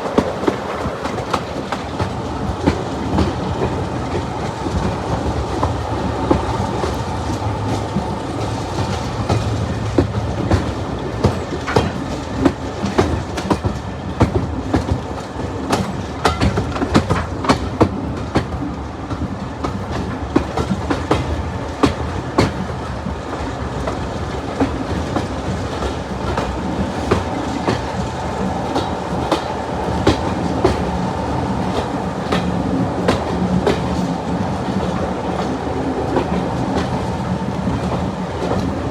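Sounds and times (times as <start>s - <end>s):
train rumble: 0.0s - 38.9s
wheels clacking over rail joints: 0.0s - 38.9s.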